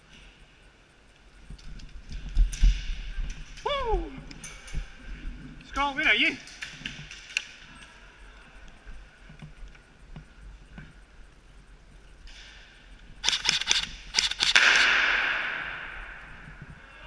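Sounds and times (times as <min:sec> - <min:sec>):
airsoft gun shots: 0:13.2 - 0:15.9.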